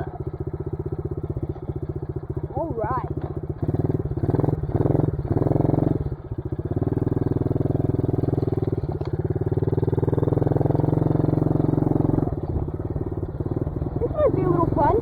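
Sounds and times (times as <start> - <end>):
dirt bike engine revving: 9.5 - 15.0.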